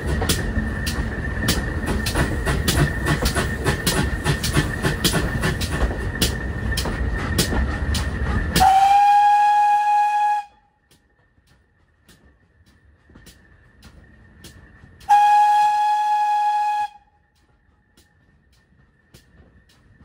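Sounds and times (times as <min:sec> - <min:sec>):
wheels clicking over rail joints: 0:00.0 - 0:08.8, 0:09.8 - 0:20.0
heavy locomotive rumble: 0:00.0 - 0:20.0
steam whistle blast: 0:08.6 - 0:10.6, 0:15.1 - 0:17.2.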